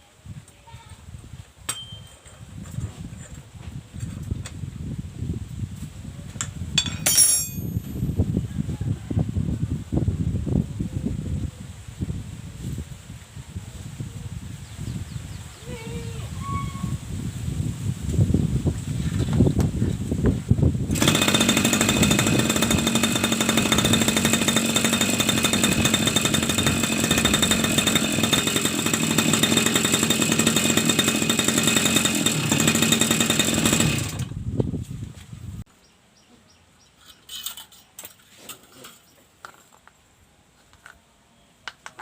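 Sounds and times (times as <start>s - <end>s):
grass cutter engine running: 20.9s - 34.4s.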